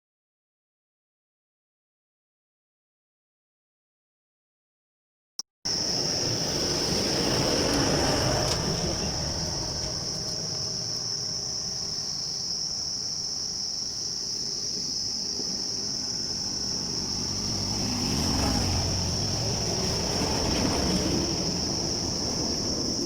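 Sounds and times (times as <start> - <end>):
insects droning: 5.7 - 23.0
low engine rumble: 5.8 - 13.3.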